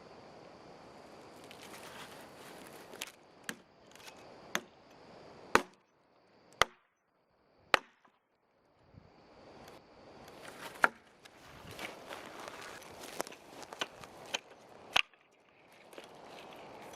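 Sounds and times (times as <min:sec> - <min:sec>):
wood being chopped: 0:02.9 - 0:04.8, 0:05.5 - 0:05.8, 0:06.6 - 0:06.9, 0:07.7 - 0:08.2, 0:10.4 - 0:11.2, 0:12.6 - 0:15.3.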